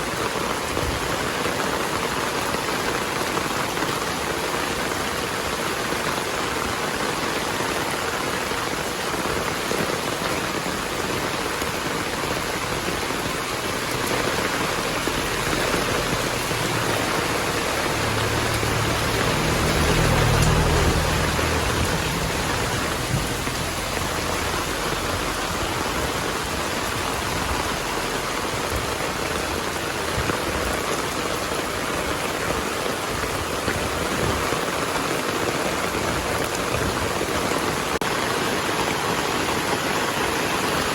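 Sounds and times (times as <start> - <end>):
heavy rain falling: 0.0 - 40.9
distant thunder rumble: 14.0 - 27.7.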